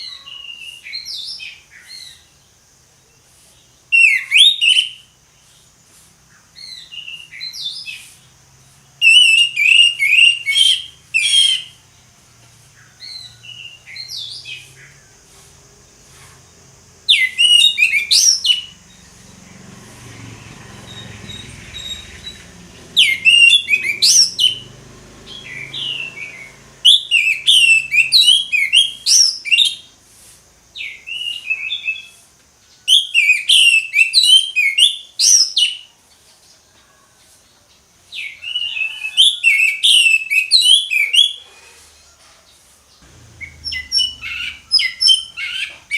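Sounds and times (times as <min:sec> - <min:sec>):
thrush singing: 0:17.1 - 0:29.2, 0:43.0 - 0:45.9.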